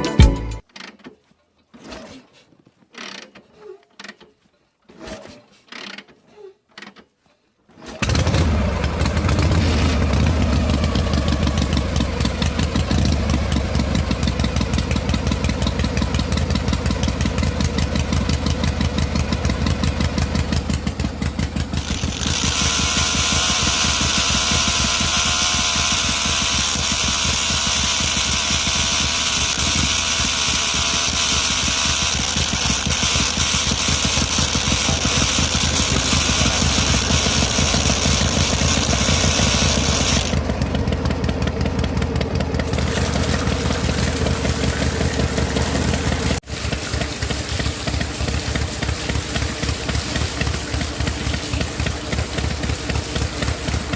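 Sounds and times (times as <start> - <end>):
small motor pulsing: 21.7 - 40.5.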